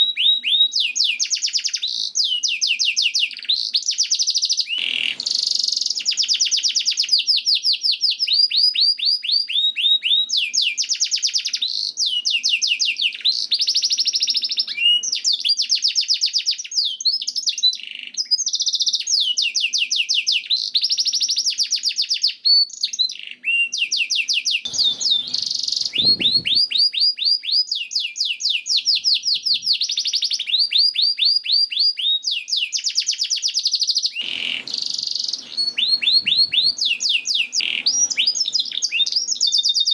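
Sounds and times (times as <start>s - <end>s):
canary singing trills: 24.6s - 39.9s.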